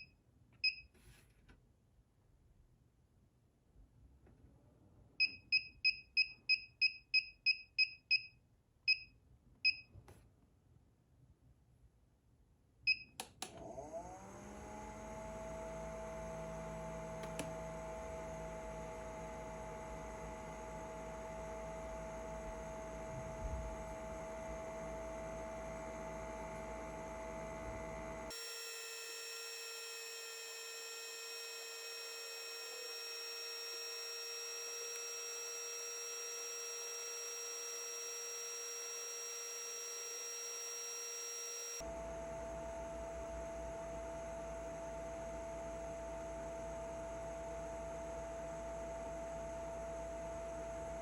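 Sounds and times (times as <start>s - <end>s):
click: 12.9s - 13.7s, 17.2s - 17.5s
fan whirring hum: 19.7s - 41.8s.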